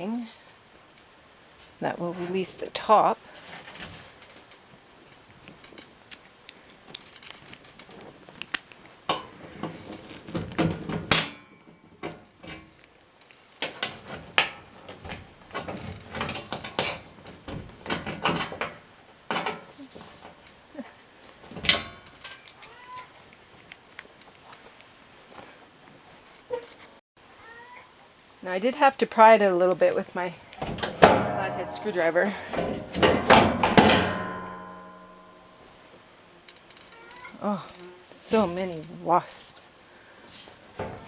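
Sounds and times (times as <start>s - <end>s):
ringing metal clang: 30.9s - 35.8s.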